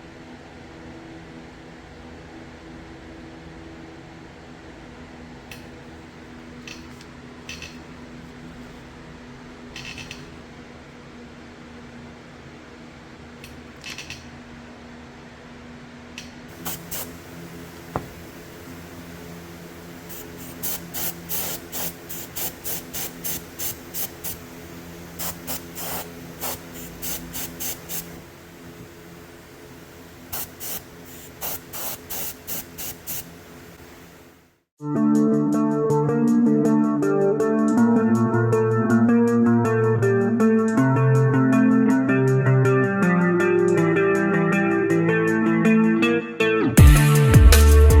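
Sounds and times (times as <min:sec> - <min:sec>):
steady background hum: 0:00.0 - 0:34.7
spray paint hissing bursts: 0:16.5 - 0:34.4.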